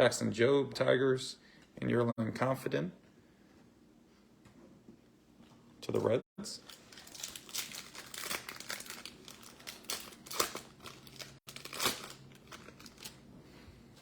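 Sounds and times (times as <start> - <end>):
foil wrapper crinkling and tearing: 6.6 - 13.2.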